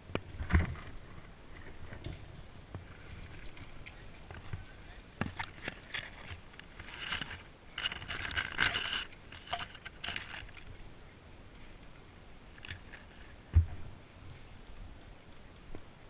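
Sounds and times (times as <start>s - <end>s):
rustling and scraping: 0.0s - 10.8s, 12.5s - 14.5s.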